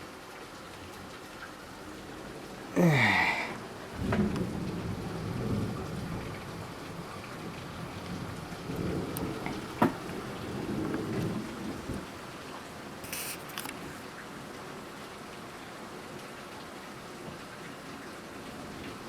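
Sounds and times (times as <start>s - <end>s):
heavy rain pouring: 0.0s - 19.0s
thunder rumbling: 2.8s - 12.3s
sharp thunder crack: 4.0s - 12.0s.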